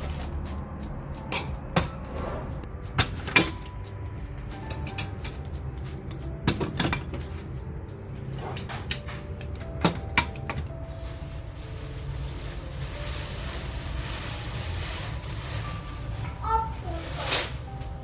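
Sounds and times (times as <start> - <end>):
faint background music: 0.0 - 18.0
kitchen knocks and clicks: 2.9 - 3.8, 4.4 - 7.5, 8.2 - 10.7.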